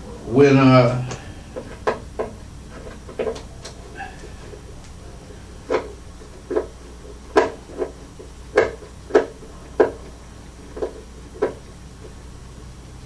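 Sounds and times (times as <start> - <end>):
wooden knocks and clacks: 5.7 - 11.6.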